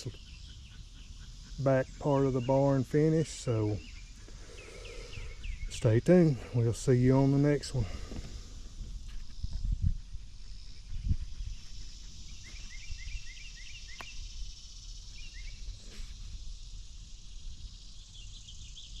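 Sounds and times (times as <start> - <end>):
bird chirping: 0.0 - 8.4, 9.3 - 16.0, 17.5 - 19.0
high insect drone: 0.0 - 19.0
wind rumble on microphone: 7.7 - 19.0.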